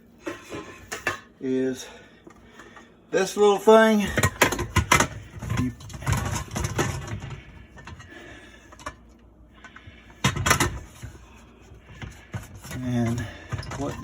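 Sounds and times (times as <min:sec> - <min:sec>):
dishwasher parts knocking and clicking: 0:04.0 - 0:08.1, 0:09.6 - 0:11.2, 0:11.9 - 0:14.0.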